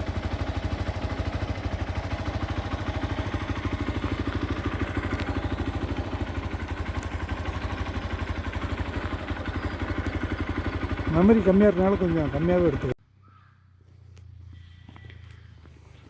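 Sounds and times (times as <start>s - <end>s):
motorcycle engine running: 0.0s - 15.9s.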